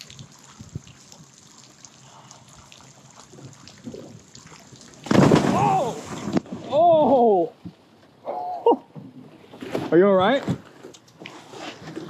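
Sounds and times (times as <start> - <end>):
water trickling and lapping: 0.0 - 6.7.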